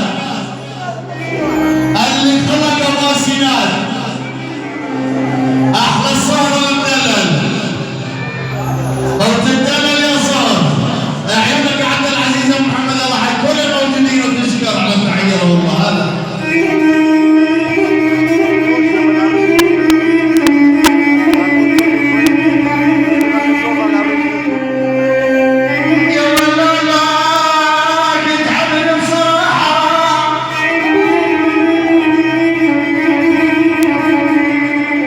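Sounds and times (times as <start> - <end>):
person singing long wavering notes: 0.0 - 6.6, 15.8 - 35.0
instrumental backing: 0.0 - 35.0.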